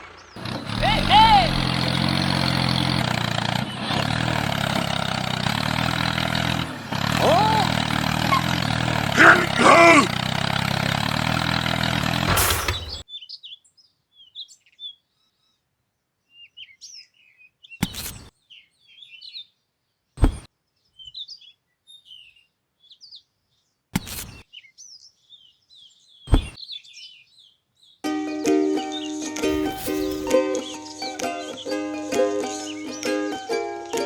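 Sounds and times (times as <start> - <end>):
small birds chirping: 0.0 - 10.8, 12.6 - 34.0
loud steady motor: 0.0 - 13.0.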